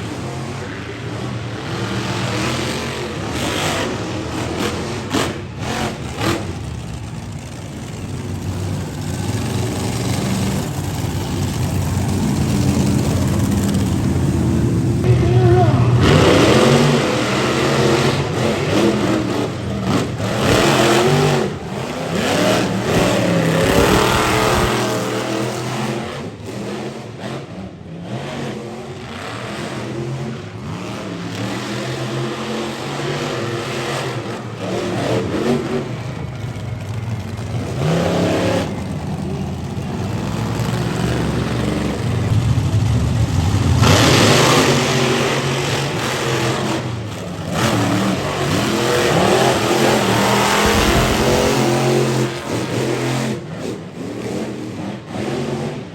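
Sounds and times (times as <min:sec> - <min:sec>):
monster truck engine revving: 0:00.0 - 0:55.9.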